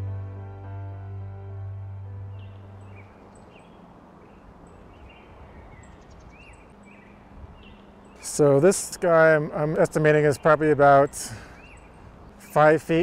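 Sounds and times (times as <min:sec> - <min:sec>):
soft background music: 0:00.0 - 0:04.1
small birds chirping: 0:02.3 - 0:13.0.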